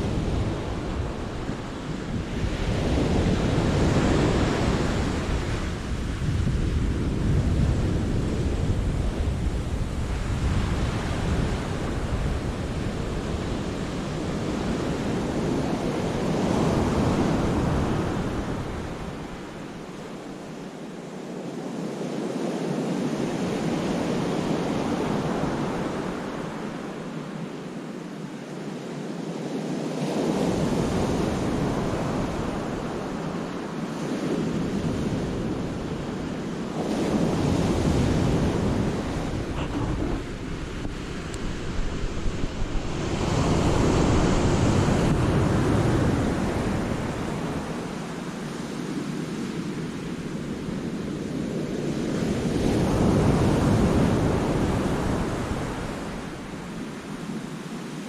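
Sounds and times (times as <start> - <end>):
wind buffeting microphone: 0.0 - 19.9, 34.2 - 57.5.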